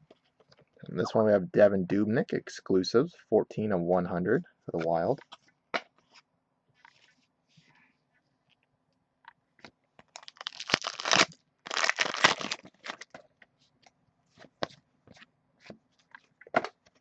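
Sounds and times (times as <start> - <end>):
foil wrapper tearing and crinkling: 10.1 - 13.1.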